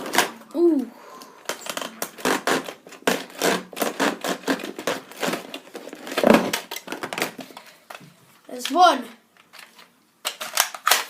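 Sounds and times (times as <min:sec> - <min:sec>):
packaging rustling: 0:01.4 - 0:08.0
plastic clicks and rattles: 0:09.4 - 0:11.0.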